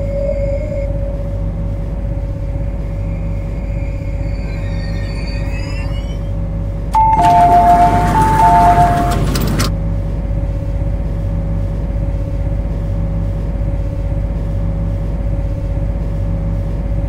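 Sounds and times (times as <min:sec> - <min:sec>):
train cab electrical hum: 0:00.0 - 0:17.0
two-note door chime: 0:07.0 - 0:09.7.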